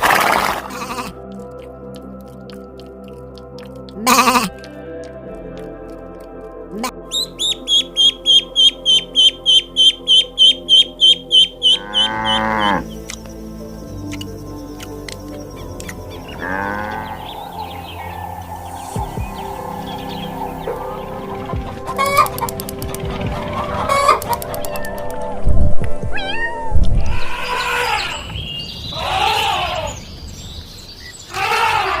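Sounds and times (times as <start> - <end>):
background music: 0.0 - 28.2
bird chirping rapidly: 7.1 - 25.2
cat meowing: 26.1 - 28.3.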